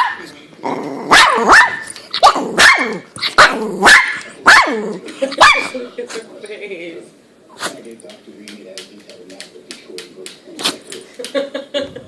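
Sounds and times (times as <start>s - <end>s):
dog sneezing: 7.5s - 7.8s.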